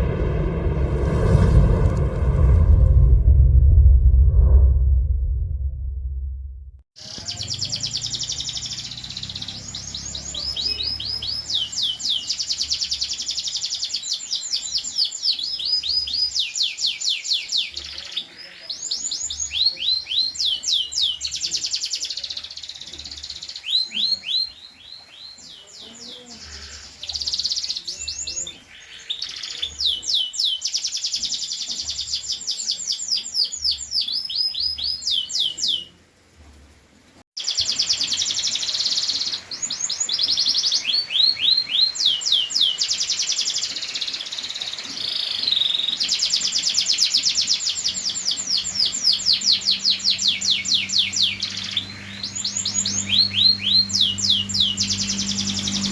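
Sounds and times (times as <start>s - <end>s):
canary singing trills: 7.0s - 36.0s, 37.4s - 55.9s.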